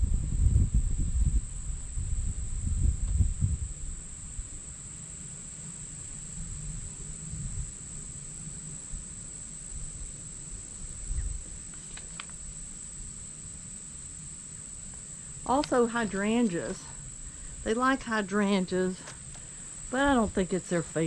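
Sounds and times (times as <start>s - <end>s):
low rumble on microphone: 0.0s - 4.8s, 6.2s - 13.2s
high-pitched insect chorus: 0.0s - 21.0s.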